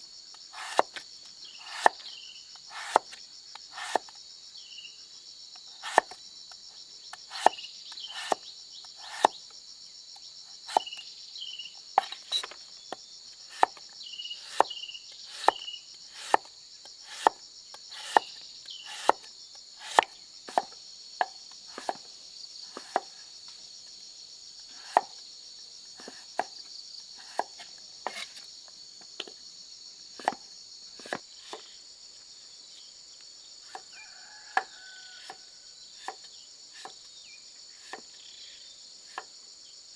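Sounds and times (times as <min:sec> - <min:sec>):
high drone of insects: 0:00.0 - 0:39.9
sharp chopping strikes: 0:00.6 - 0:01.0, 0:02.7 - 0:03.2, 0:03.8 - 0:04.1, 0:15.3 - 0:15.6, 0:16.2 - 0:16.5, 0:17.1 - 0:18.3, 0:18.9 - 0:20.8.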